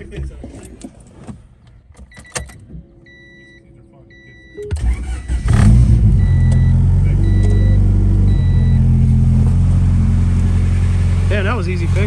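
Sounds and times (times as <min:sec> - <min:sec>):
car engine idling: 0:04.7 - 0:12.0
chime beeping: 0:06.2 - 0:08.9.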